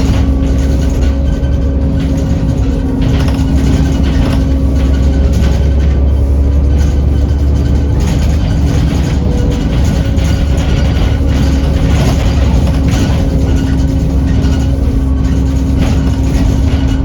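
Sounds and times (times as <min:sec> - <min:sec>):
diesel bus engine drone: 0:00.0 - 0:17.0.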